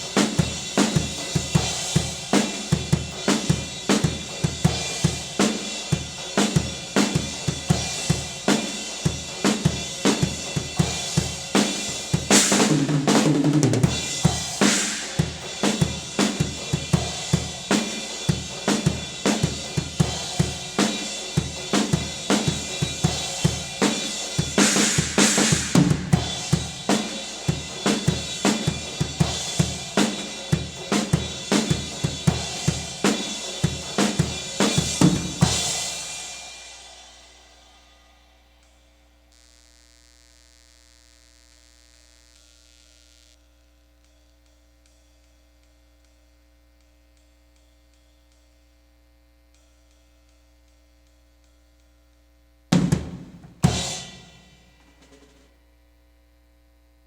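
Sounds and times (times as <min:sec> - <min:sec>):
drum kit groove: 0:00.0 - 0:38.1, 0:52.7 - 0:55.5
faint electrical hum: 0:00.0 - 0:57.0
china cymbal crashes: 0:31.9 - 0:39.2, 0:53.6 - 0:55.4.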